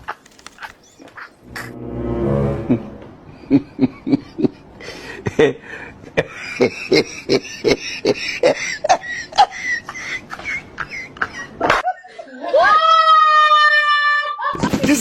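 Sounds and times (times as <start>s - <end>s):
faint high chirping: 0.0s - 1.7s.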